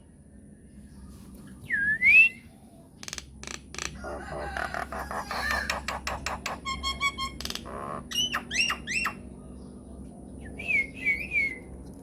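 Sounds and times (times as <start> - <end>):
bird clicks: 3.0 - 4.0
bird whistle: 8.1 - 9.2, 10.6 - 11.7.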